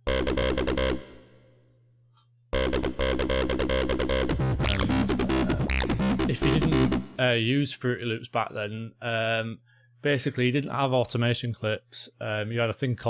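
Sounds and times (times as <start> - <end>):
electronic dance music: 0.0 - 1.4, 2.6 - 7.2.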